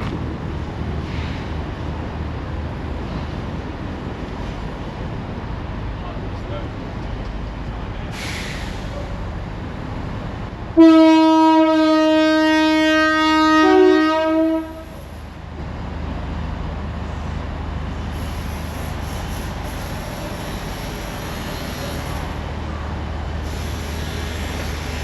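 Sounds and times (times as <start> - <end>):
train horn blast: 10.8 - 15.0.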